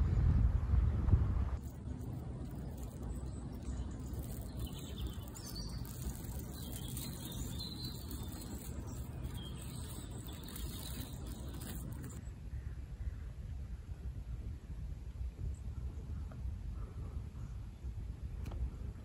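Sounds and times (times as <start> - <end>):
low outdoor rumble: 0.0 - 19.0
birds chirping faintly: 1.6 - 13.2.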